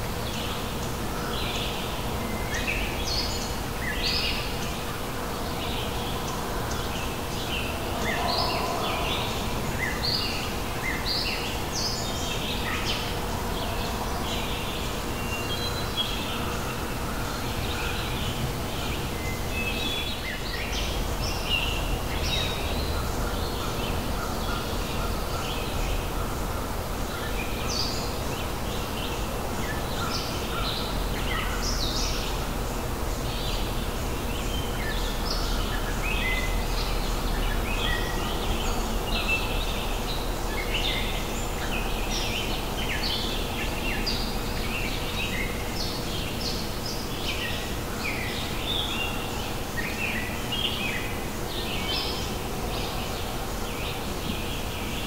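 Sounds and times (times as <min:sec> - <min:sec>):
low outdoor rumble: 0:04.9 - 0:27.5
birds chirping and calling: 0:05.6 - 0:28.2.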